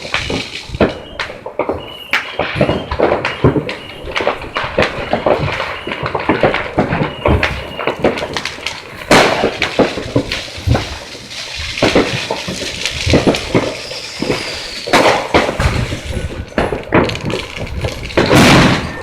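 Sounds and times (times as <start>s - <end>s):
fireworks popping and cracking: 0.0s - 19.0s
loud fireworks bangs: 0.0s - 19.0s.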